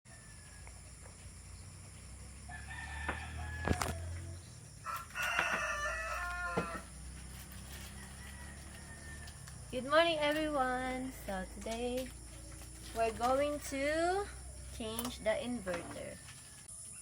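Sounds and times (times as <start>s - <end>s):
rooster crowing: 0.1s - 1.1s, 2.3s - 9.7s.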